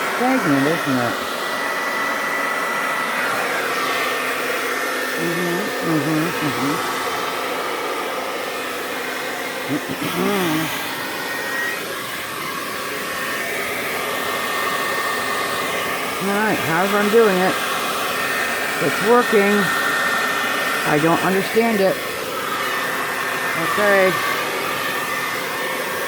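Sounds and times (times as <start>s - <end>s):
person speaking: 0.0s - 1.3s, 5.2s - 7.0s, 9.7s - 10.8s, 16.1s - 17.6s, 18.7s - 19.8s, 20.8s - 22.0s, 23.5s - 24.4s
blow-dryer blowing with high whine: 0.0s - 26.0s.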